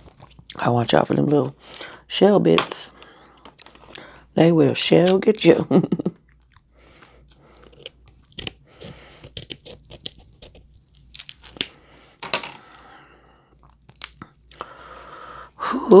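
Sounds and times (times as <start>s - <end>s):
person chewing: 0.0s - 0.6s, 6.2s - 11.8s, 12.6s - 15.6s
crab shell crunching: 0.0s - 0.9s, 6.2s - 15.6s.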